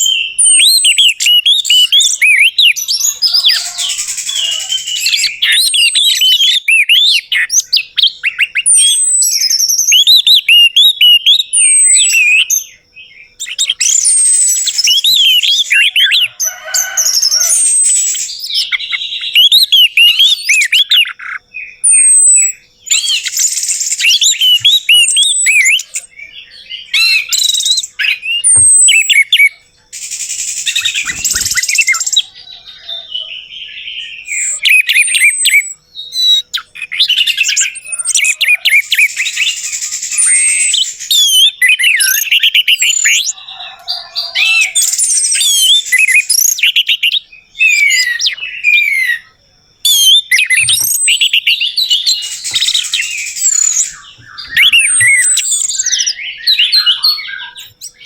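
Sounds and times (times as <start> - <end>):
thrush singing: 2.4 - 5.6.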